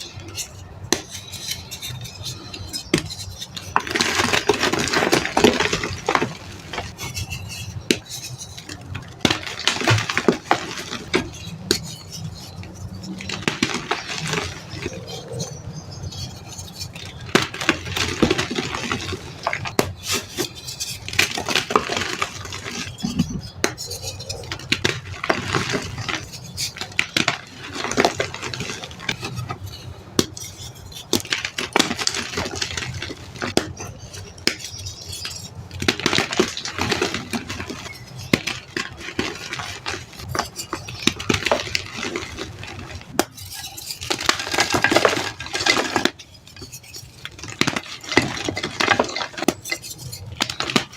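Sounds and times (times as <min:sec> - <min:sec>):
chalk being crushed and crumbled: 0:00.0 - 0:50.9.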